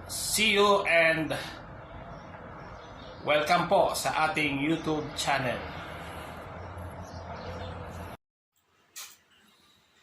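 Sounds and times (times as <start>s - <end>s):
sharp click: 8.9s - 9.2s.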